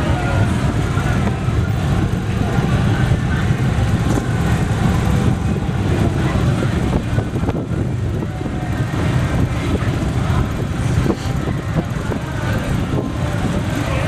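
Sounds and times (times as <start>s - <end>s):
motorcycle engines rumbling: 0.0s - 14.0s.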